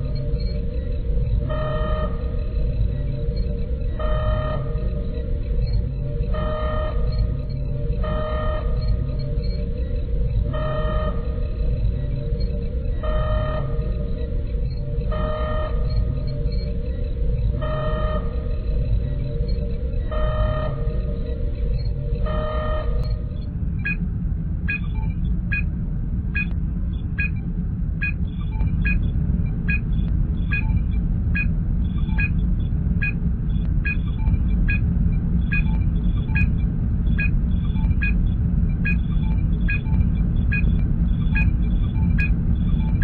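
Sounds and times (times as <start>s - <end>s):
low engine rumble: 0.0s - 43.0s
electronic scanning blip: 30.5s - 32.4s, 38.8s - 43.0s.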